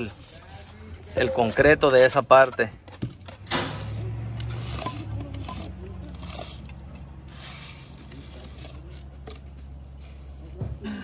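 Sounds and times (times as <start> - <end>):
wet concrete scraping: 0.0 - 10.5.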